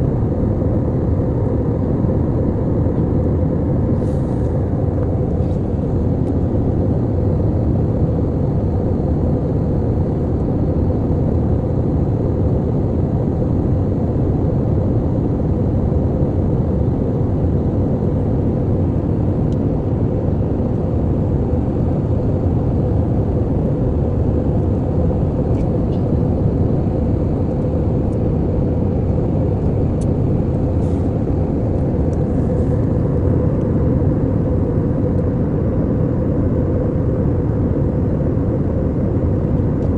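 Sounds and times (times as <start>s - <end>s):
engine and airflow rush: 0.0s - 39.9s
steady hum: 14.4s - 39.9s.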